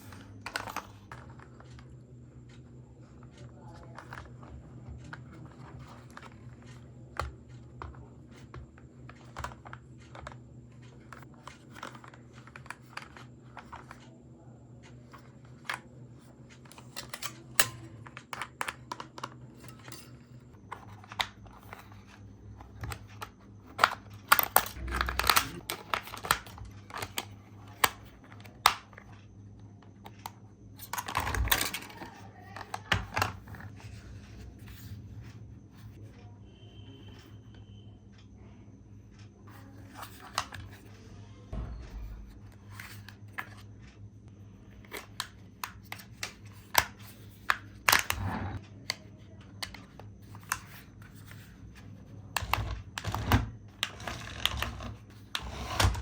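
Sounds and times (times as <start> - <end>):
plastic toy parts clicking: 20.7 - 29.0, 30.0 - 33.8, 44.9 - 51.4.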